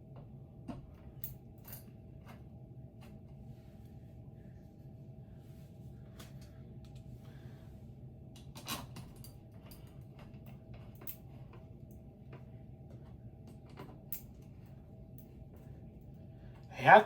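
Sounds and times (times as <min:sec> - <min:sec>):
faint steady hum: 0:00.0 - 0:17.0
fan parts clicking and knocking: 0:08.4 - 0:15.7.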